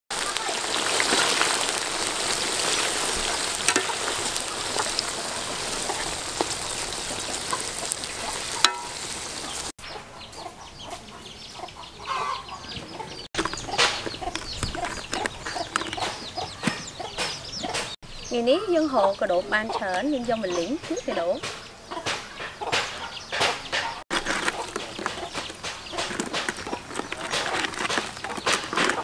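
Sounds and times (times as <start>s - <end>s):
food sizzling in hot oil: 0.1s - 9.8s
chickens clucking: 2.3s - 29.0s
metal skimmer scraping pan: 2.6s - 4.9s, 8.6s - 9.2s.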